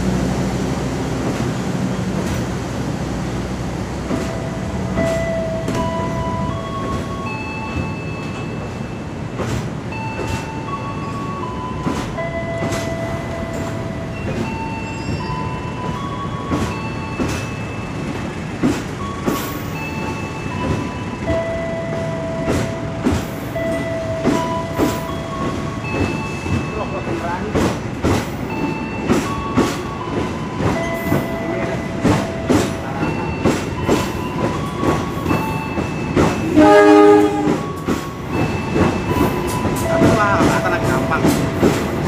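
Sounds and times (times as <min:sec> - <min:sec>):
train wheels clicking over rail joints: 0:00.0 - 0:02.8, 0:03.7 - 0:42.0
train rumble: 0:00.0 - 0:42.0.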